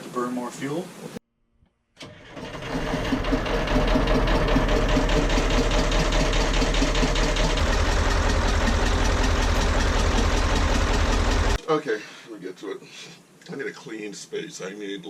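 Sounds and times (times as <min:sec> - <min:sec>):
diesel engine running: 0:02.0 - 0:11.6
deeper engine drone: 0:02.8 - 0:11.6.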